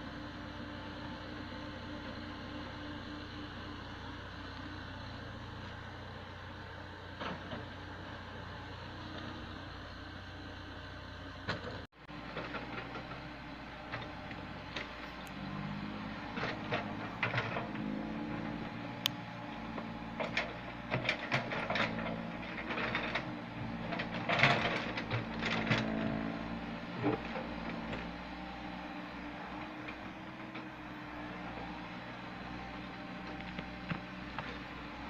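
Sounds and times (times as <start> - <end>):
excavator diesel engine running: 0.0 - 35.0
metallic clanks and knocks: 20.2 - 26.3.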